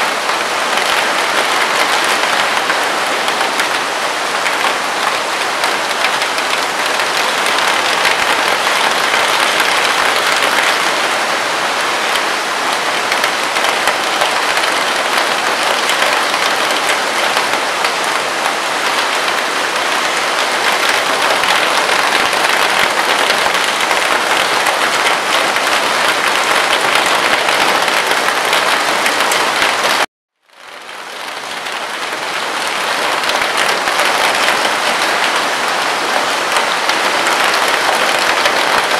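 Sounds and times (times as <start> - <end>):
rain on a tent: 0.0 - 38.9.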